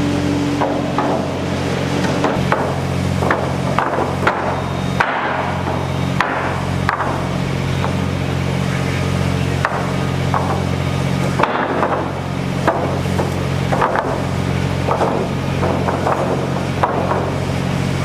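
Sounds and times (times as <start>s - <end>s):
engine hum: 0.0s - 18.0s
hammer blows ringing: 2.2s - 8.1s.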